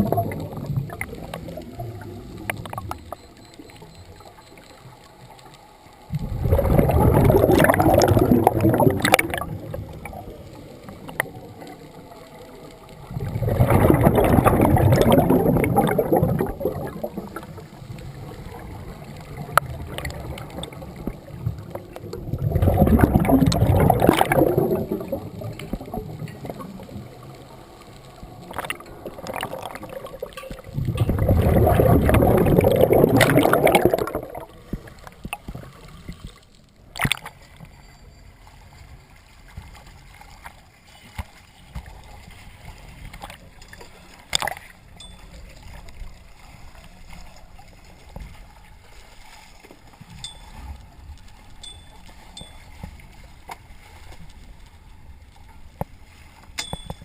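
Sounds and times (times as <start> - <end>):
diver exhaling bubbles through regulator: 0.0 - 3.0, 6.1 - 10.3, 13.1 - 17.6, 19.4 - 26.7, 28.5 - 34.6.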